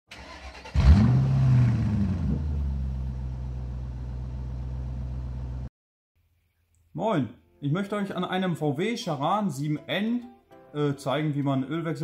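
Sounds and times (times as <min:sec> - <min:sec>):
car engine starting and idling: 0:00.1 - 0:05.7.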